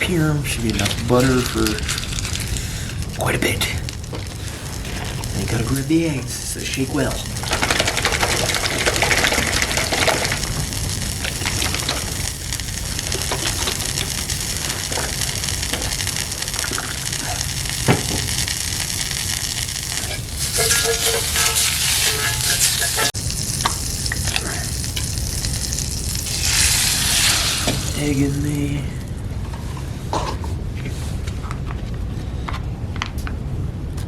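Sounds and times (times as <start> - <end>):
butter sizzling in a frying pan: 0.0 - 28.5
sharp pops of hot fat: 3.8 - 28.0.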